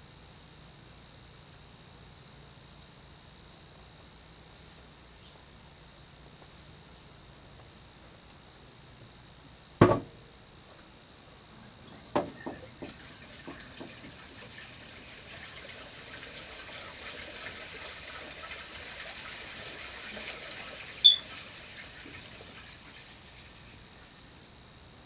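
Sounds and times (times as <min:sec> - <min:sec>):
short high squeak: 0:21.0 - 0:21.3.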